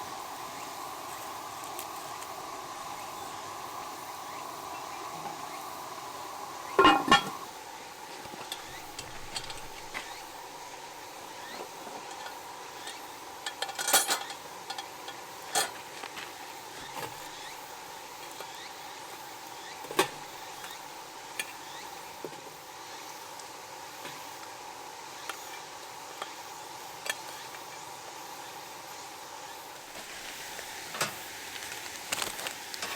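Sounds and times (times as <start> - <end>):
steady hiss: 0.0 - 32.9
metal utensils clinking on cookware: 6.7 - 7.4, 8.4 - 10.1, 11.9 - 15.8.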